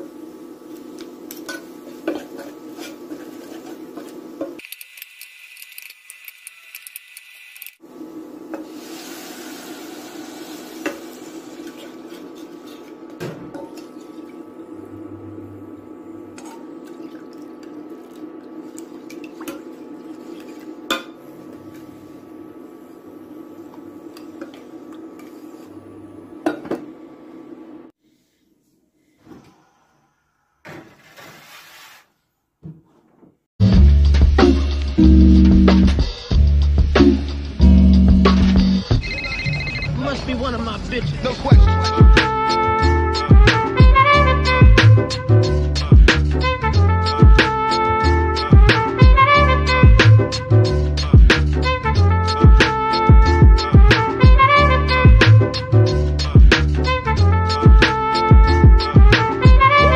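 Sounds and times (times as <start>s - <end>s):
metal utensil scraping a pot: 11.6s - 13.0s.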